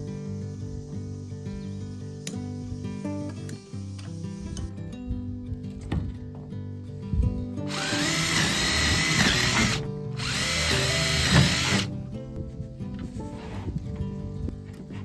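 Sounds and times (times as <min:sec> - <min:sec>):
background music: 0:00.0 - 0:15.0
power drill running: 0:07.7 - 0:11.9.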